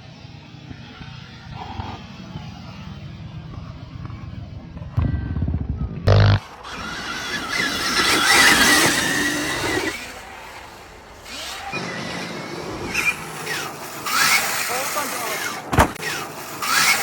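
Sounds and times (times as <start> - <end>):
dirt bike engines revving: 6.1 - 17.0.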